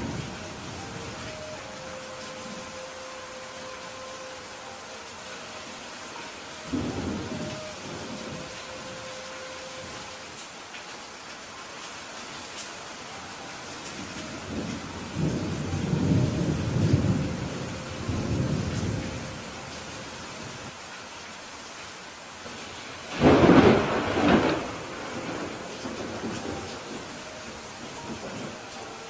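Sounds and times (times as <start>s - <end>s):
steady rain falling: 0.0s - 29.0s
rolling thunder rumble: 23.1s - 28.7s.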